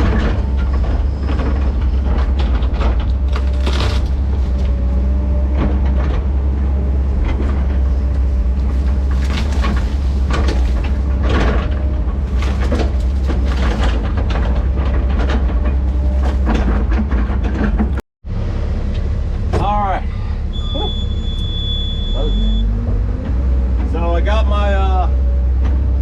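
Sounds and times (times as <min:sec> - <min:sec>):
steel tracks clanking and rattling: 0:00.0 - 0:18.0
diesel engine running under load: 0:00.0 - 0:26.0.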